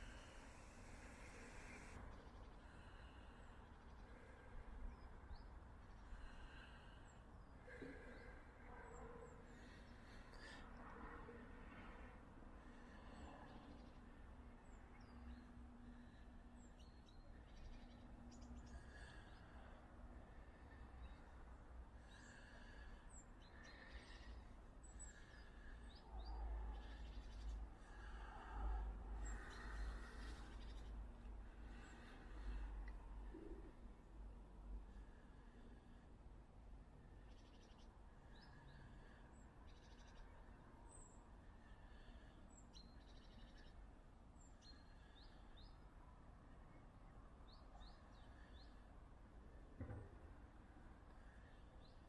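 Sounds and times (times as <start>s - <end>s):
small birds chirping and trilling: 22.0s - 28.5s, 29.1s - 32.6s, 37.2s - 43.8s, 44.4s - 45.9s
faint bird chirps: 37.2s - 43.8s.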